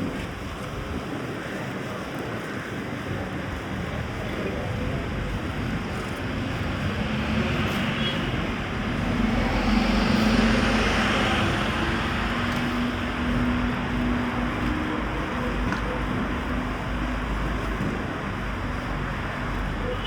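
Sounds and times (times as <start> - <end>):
traffic noise: 0.0 - 20.0
vehicle engine passing by: 6.4 - 14.3.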